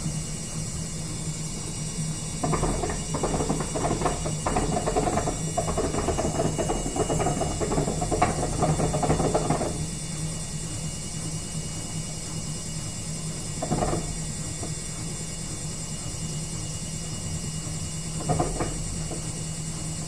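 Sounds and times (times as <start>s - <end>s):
washing machine low hum: 0.0s - 20.0s
washing machine drum rattling: 2.4s - 10.0s, 13.5s - 15.0s, 18.1s - 20.0s.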